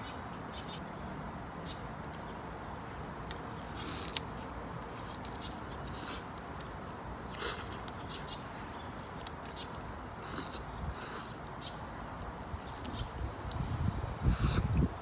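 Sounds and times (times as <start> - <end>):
person biting and chewing: 3.2 - 8.0.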